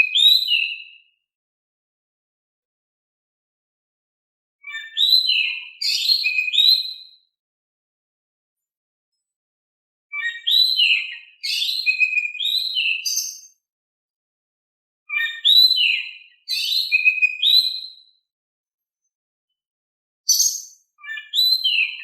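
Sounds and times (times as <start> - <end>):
bird singing whistled notes: 0.0 - 1.2, 4.6 - 7.4, 10.1 - 13.7, 15.1 - 18.2, 20.3 - 22.0.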